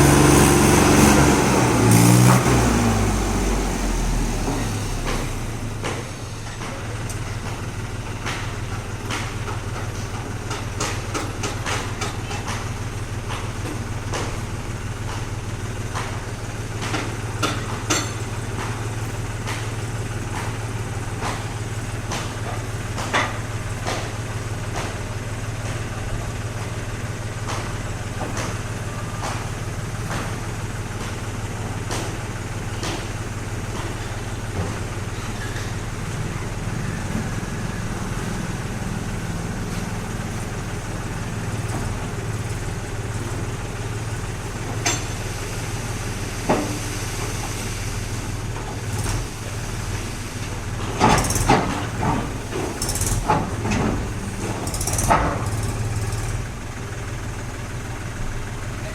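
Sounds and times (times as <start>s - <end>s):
truck engine idling: 0.0s - 58.9s.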